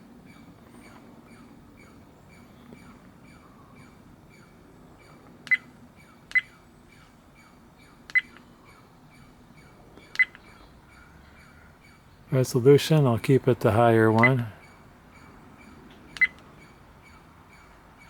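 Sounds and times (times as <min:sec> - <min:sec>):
faint regular ticking: 0:00.3 - 0:18.0.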